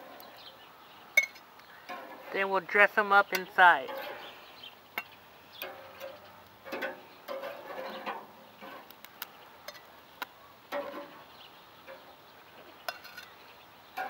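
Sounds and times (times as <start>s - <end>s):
plates and utensils clattering: 12.9s - 13.4s.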